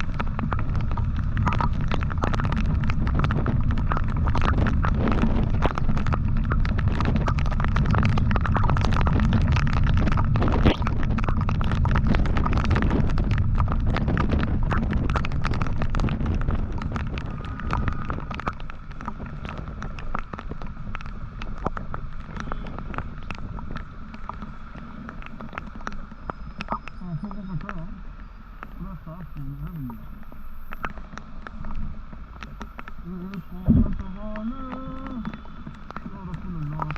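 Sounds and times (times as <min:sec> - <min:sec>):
motorcycle engine and road noise: 0:00.0 - 0:27.4
wind buffeting on microphone: 0:00.0 - 0:36.9.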